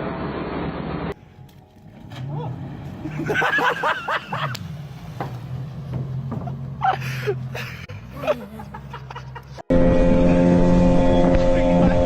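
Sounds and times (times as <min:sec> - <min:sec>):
people shouting and laughing: 0:06.8 - 0:09.5.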